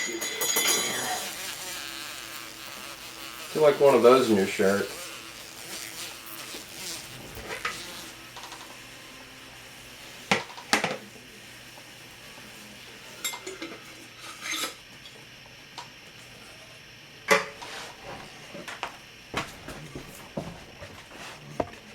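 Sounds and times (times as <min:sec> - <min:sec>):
glass jar clinking: 0:00.0 - 0:01.2.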